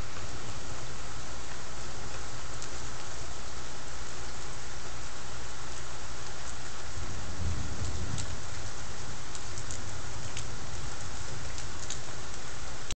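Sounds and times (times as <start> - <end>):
raindrops ticking: 0.0 - 13.0
steady rain: 0.0 - 13.0
thunder rumble: 6.9 - 12.2.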